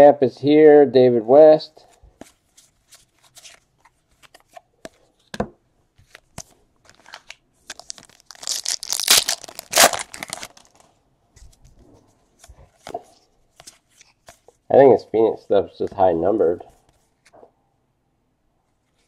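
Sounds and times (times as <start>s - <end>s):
foil wrapper tearing: 7.1s - 10.8s.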